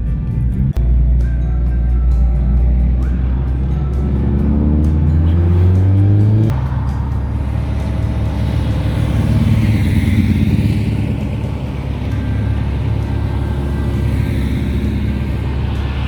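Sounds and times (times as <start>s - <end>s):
car engines rumbling: 0.0s - 16.0s
engine revving: 0.0s - 16.0s.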